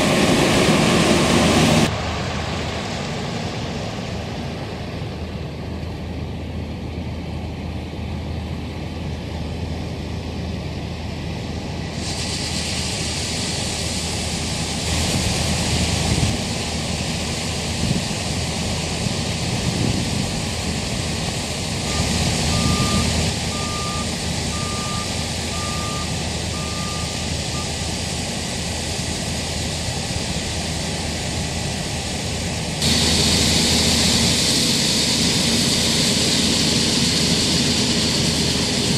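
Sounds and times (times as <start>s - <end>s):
diesel engines humming: 0.0s - 38.9s
reversing alarm beeping: 21.8s - 27.9s.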